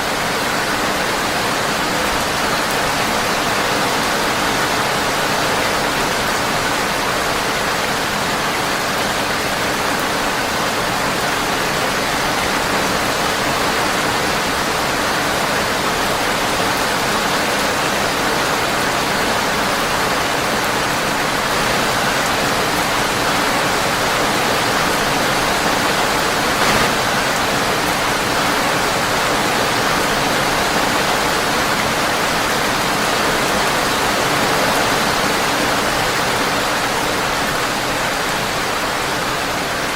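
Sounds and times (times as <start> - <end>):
heavy rain on a window: 0.0 - 39.9
short crack: 26.6 - 27.6.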